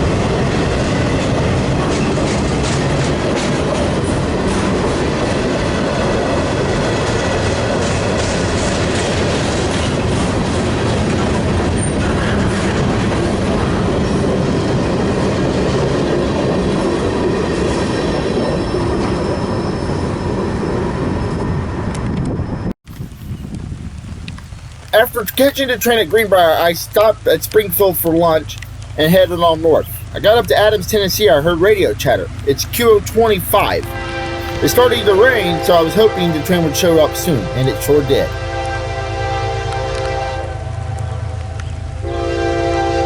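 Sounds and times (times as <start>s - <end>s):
train rumbling on rails: 0.0s - 43.0s
faint wheel squeal: 17.8s - 20.6s.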